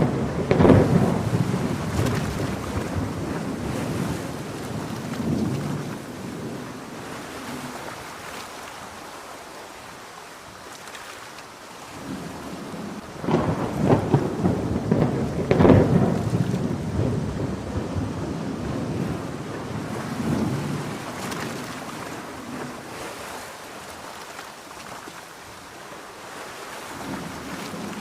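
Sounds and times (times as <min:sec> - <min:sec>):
rolling thunder: 0:00.0 - 0:07.0, 0:12.0 - 0:22.7
steady rain: 0:00.0 - 0:28.0.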